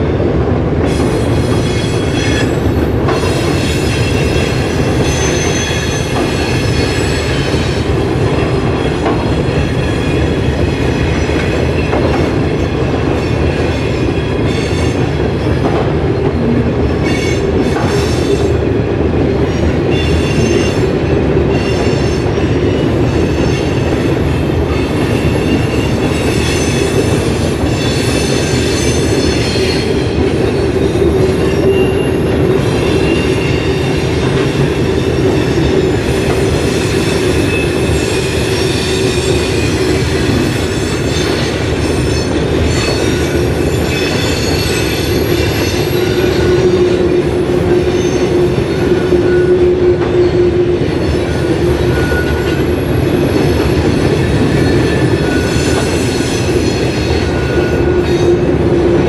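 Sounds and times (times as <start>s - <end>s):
freight train rumbling: 0.0s - 59.0s
wheel squeal: 54.7s - 58.4s.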